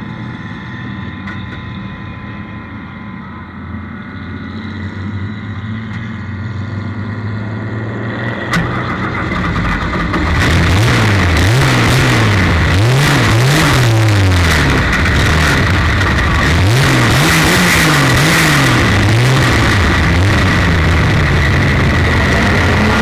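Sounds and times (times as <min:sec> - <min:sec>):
race car engine revving: 0:08.2 - 0:23.0
steady high whine: 0:08.5 - 0:23.0.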